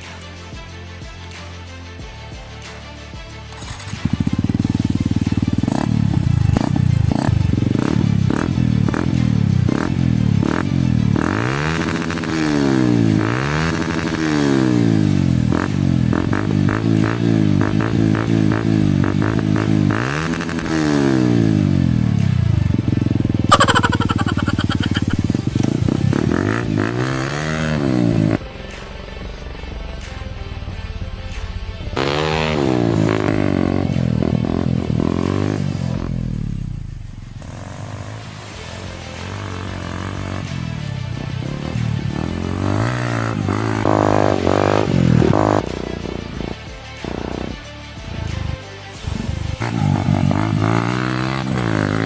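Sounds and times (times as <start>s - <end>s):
motorcycle engine revving: 3.5s - 28.4s, 32.0s - 45.7s, 49.6s - 52.0s.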